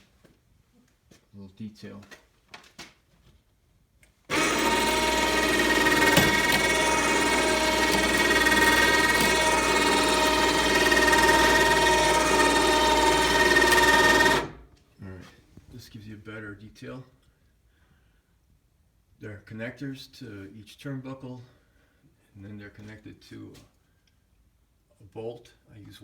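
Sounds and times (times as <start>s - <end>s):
electric winch motor whine: 4.3s - 14.7s.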